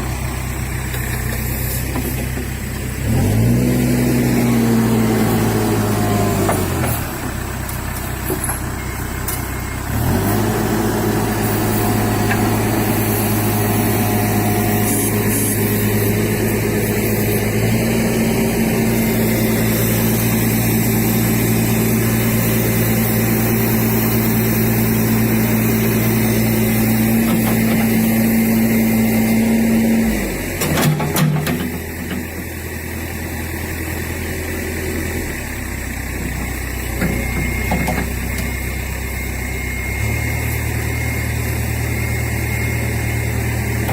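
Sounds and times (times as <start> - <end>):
truck engine revving: 0.0 - 8.4, 9.8 - 32.5.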